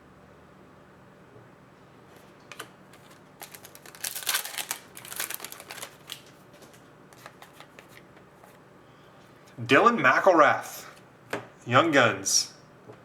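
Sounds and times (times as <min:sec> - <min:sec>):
trading cards clicking and rustling: 0:02.2 - 0:08.6.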